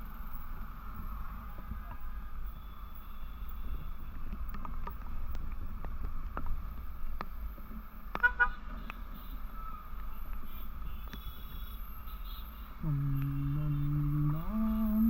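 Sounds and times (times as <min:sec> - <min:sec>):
motorcycle wind and road rumble: 0:00.0 - 0:11.7
vehicle horn beeps: 0:10.4 - 0:14.9.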